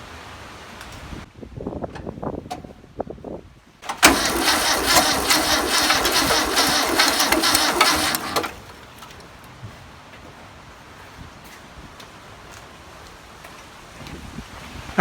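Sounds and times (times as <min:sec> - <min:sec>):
starter motor cranking engine: 0:03.8 - 0:09.0.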